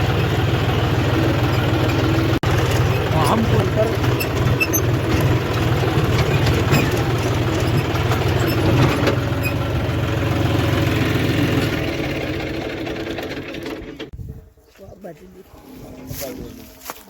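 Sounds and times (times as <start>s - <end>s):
tractor diesel engine running: 0.0s - 14.5s
sharp knocks or rattles: 1.9s - 9.4s.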